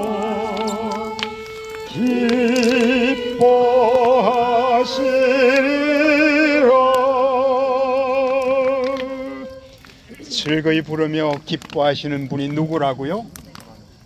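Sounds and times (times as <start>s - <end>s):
violin accompaniment: 0.0s - 9.9s
group singing worship song: 1.9s - 9.6s.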